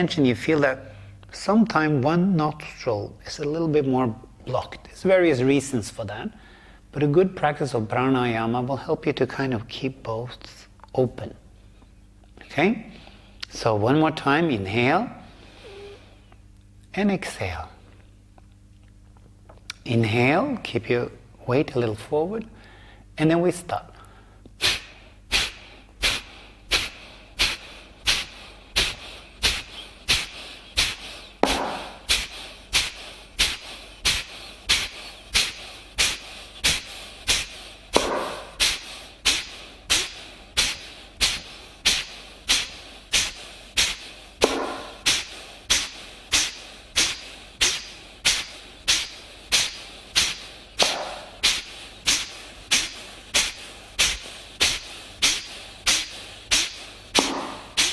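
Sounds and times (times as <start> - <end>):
sharp exhalations through nose: 15.4 - 16.3, 24.6 - 57.9.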